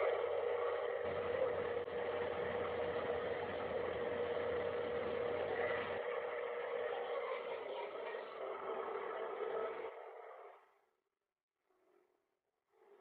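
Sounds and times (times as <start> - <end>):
droning hum with hiss: 0.0 - 7.3.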